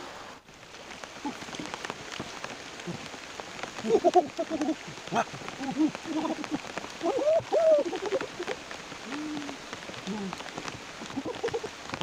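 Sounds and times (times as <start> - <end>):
rain falling steadily: 0.0 - 12.0
raindrop ticks: 0.6 - 12.0
voice-like sounds: 9.1 - 10.4.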